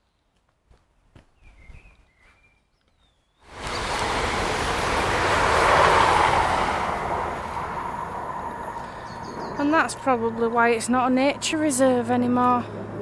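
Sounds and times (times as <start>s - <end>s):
bird chirps: 1.4s - 3.9s, 8.8s - 9.8s
train passing: 3.5s - 13.0s.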